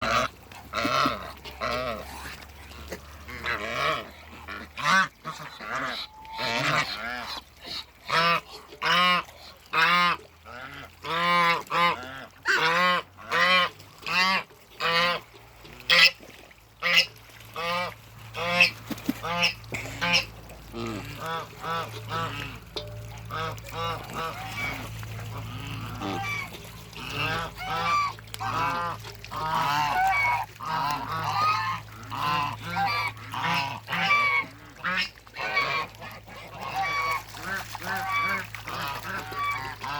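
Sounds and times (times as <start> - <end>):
geese honking: 16.8 - 39.9.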